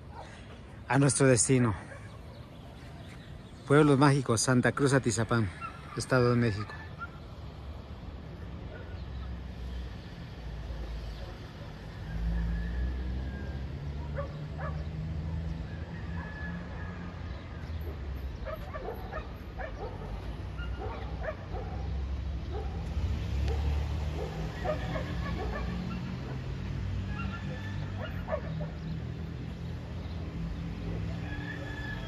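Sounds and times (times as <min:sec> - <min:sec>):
dogs barking: 0:01.7 - 0:02.5, 0:05.5 - 0:07.4, 0:08.6 - 0:09.4, 0:13.9 - 0:15.0, 0:15.9 - 0:29.6, 0:30.7 - 0:32.0.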